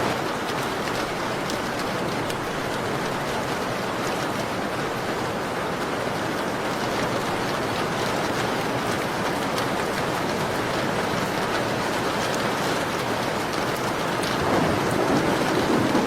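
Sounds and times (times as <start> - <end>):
rain against a window: 0.0 - 16.0.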